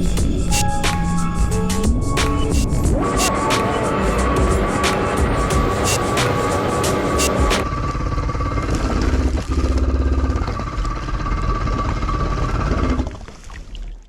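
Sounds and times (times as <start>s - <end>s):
jet ski engine running: 2.2s - 13.1s.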